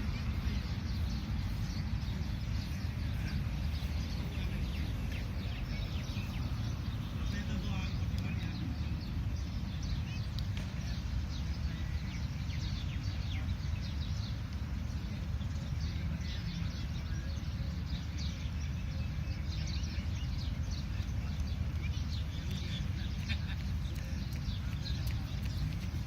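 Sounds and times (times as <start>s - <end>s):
steady low rumble: 0.0s - 10.9s
bird chirping: 0.0s - 14.4s.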